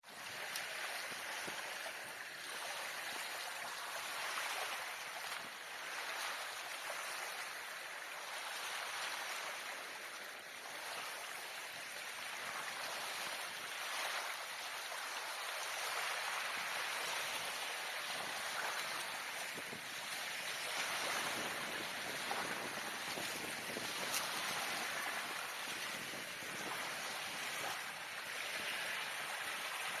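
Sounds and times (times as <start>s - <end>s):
water rushing: 11.4s - 30.0s.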